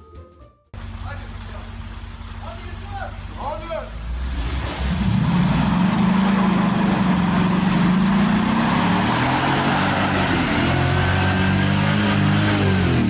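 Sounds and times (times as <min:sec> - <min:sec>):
vehicle engine running: 0:00.8 - 0:13.0.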